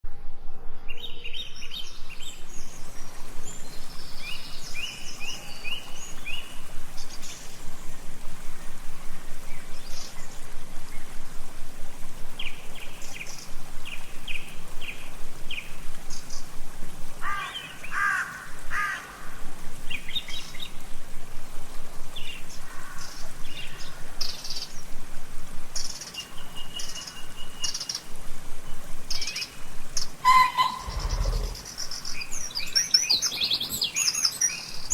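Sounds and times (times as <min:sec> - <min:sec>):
background hiss: 0:00.1 - 0:34.9
songbirds chirping and singing: 0:30.3 - 0:34.9.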